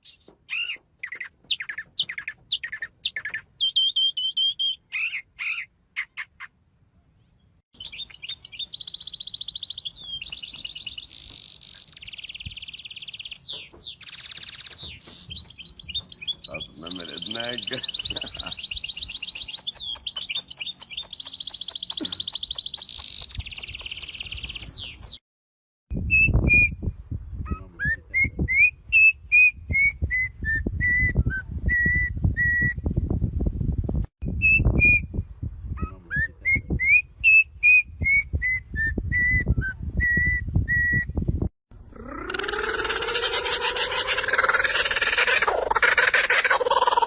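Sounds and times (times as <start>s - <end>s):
bird whistling: 0.0s - 6.3s, 7.8s - 25.2s.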